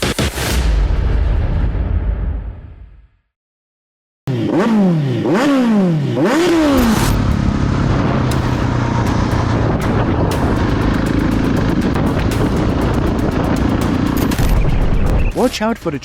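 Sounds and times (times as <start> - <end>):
motorcycle engine revving: 4.3 - 15.4
road noise: 4.3 - 16.0.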